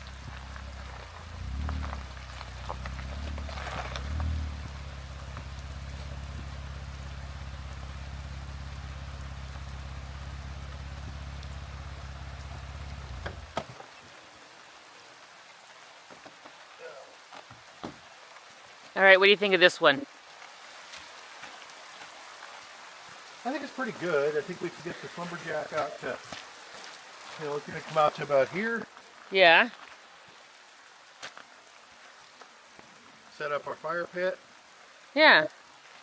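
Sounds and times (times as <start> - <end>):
car engine humming: 0.0 - 14.7, 23.4 - 26.7
rain pattering on vehicle: 0.0 - 36.0.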